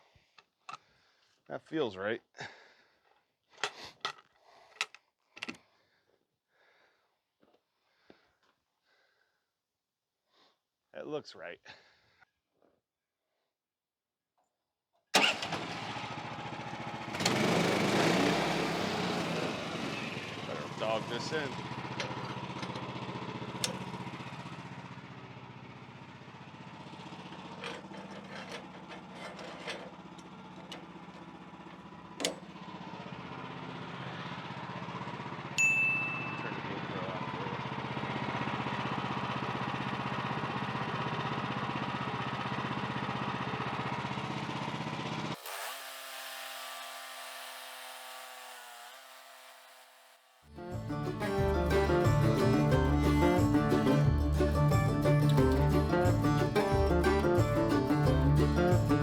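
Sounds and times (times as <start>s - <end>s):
small gas engine idling: 15.2s - 48.5s, 49.1s - 59.0s.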